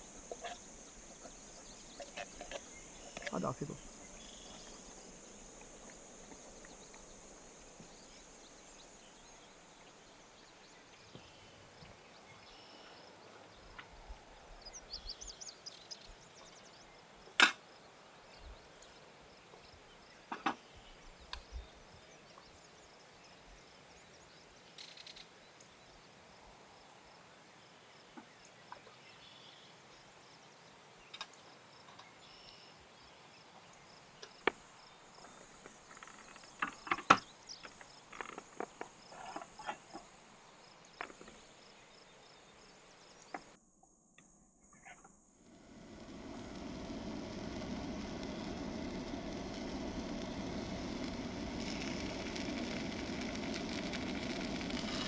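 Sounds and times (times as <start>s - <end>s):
campfire wood crackling: 45.5s - 55.0s.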